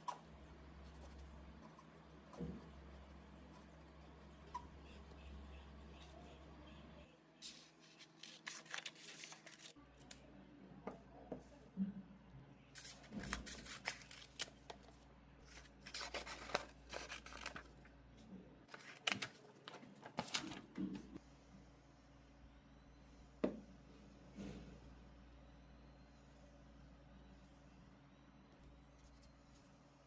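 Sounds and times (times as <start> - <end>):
paper rustling and tearing: 7.4 - 9.8, 12.8 - 14.8, 15.4 - 17.8, 18.7 - 20.7.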